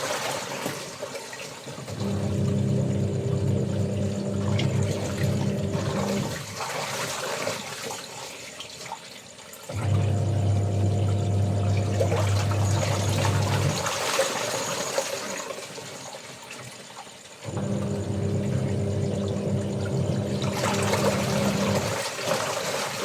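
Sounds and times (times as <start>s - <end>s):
water sloshing: 0.0s - 23.0s
washing machine motor humming: 1.9s - 6.6s, 9.7s - 15.1s, 17.4s - 22.5s.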